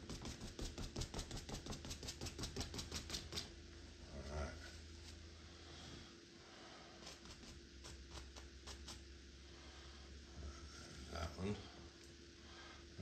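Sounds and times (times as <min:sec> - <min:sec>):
paintbrush tapping: 0:00.0 - 0:03.5.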